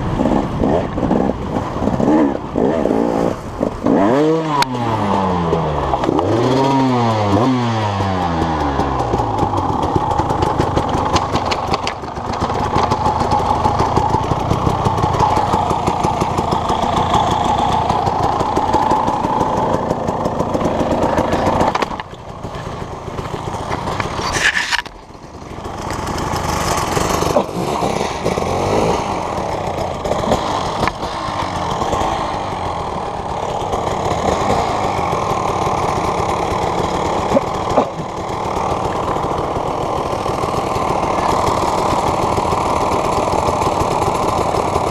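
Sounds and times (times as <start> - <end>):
engine running: 0.0 - 44.9.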